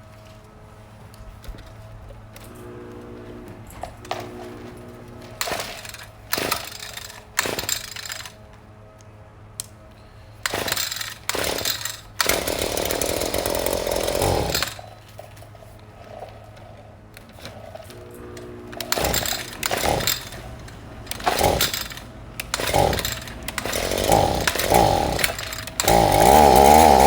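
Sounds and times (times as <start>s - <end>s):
two-stroke engine running: 2.4s - 8.3s, 10.4s - 15.4s, 17.3s - 27.0s
starter cord pulls: 2.4s - 8.4s, 10.4s - 15.4s, 17.2s - 27.0s.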